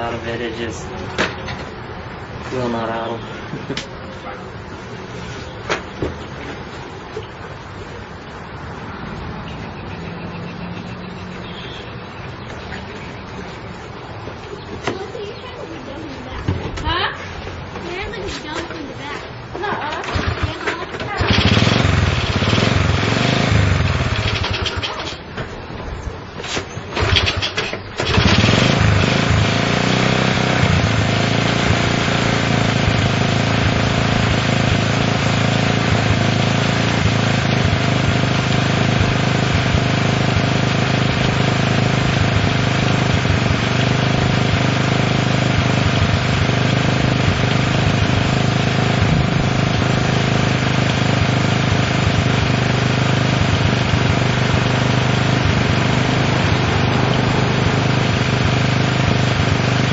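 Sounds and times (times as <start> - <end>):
small engine sputtering and idling: 19.7 - 25.2, 26.8 - 59.9.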